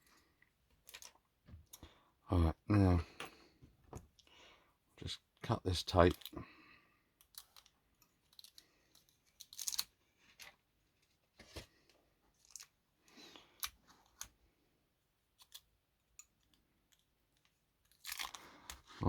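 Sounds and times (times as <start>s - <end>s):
plastic parts rustling: 0.7s - 1.9s, 7.2s - 12.8s.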